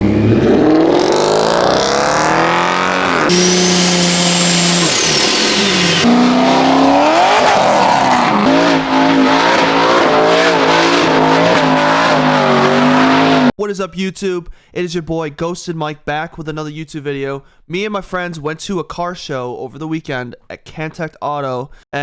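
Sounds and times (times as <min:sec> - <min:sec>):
car engines revving: 0:00.0 - 0:13.5.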